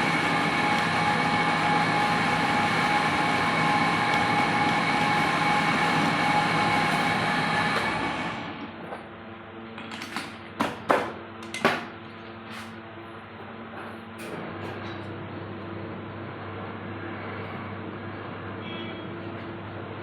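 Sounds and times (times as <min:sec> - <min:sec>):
metal lathe machining: 0:00.0 - 0:08.8.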